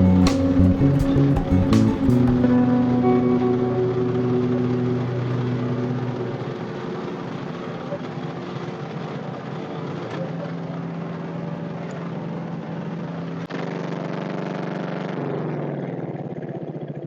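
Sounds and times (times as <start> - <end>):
excavator engine running: 0.0 - 13.5.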